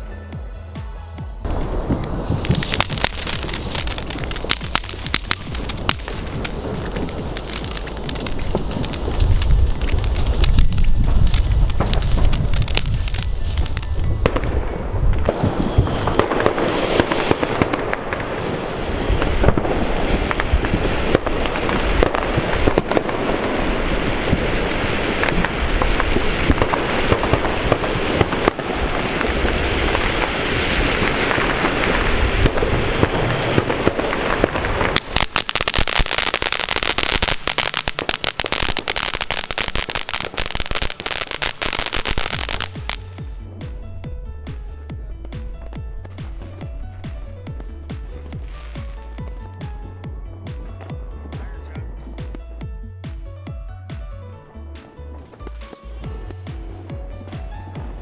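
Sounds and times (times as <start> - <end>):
fireworks crackling and banging: 0.0 - 58.0.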